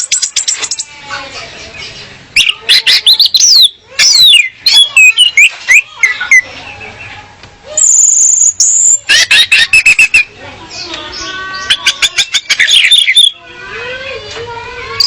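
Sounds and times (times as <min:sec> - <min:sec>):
high buzzy bird trill: 0:07.8 - 0:13.4.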